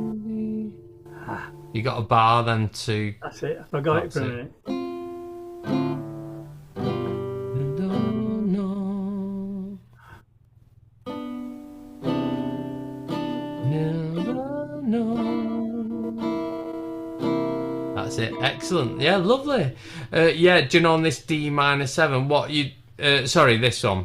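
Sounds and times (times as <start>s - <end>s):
acoustic guitar chords: 0.0s - 2.6s, 3.8s - 10.2s, 11.0s - 21.1s
guitar note gliding up: 11.1s - 19.5s.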